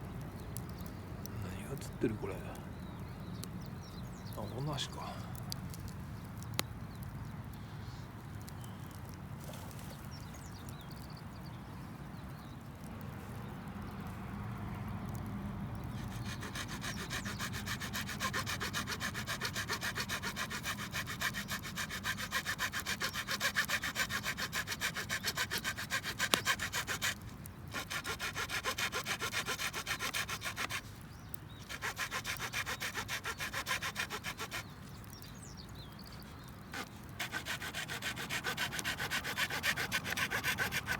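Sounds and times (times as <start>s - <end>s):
hand saw cutting wood: 16.0s - 31.0s, 31.6s - 34.7s, 36.8s - 40.9s.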